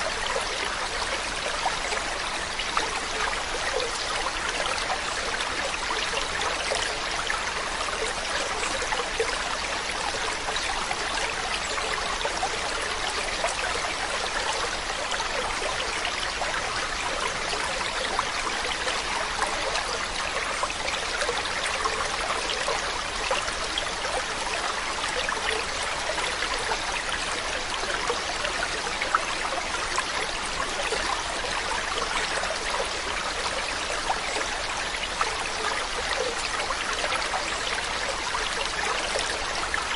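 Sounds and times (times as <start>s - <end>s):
water trickling over stones: 0.0s - 39.9s.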